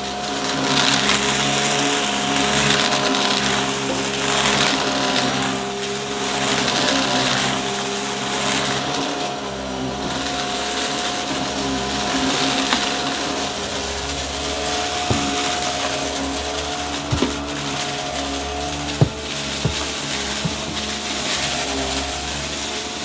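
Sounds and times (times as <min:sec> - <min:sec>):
vacuum cleaner motor whine: 0:00.0 - 0:23.0
crackle of debris picked up: 0:12.2 - 0:23.0.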